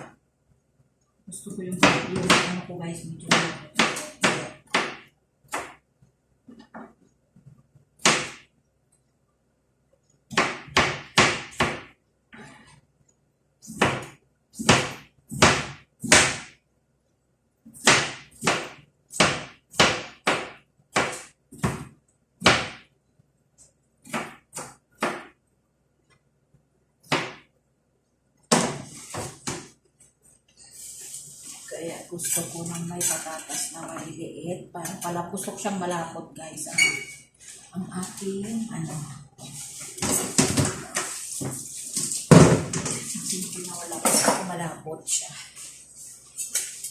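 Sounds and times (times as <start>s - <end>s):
knife chopping on cutting board: 17.8s - 22.8s, 24.0s - 25.4s.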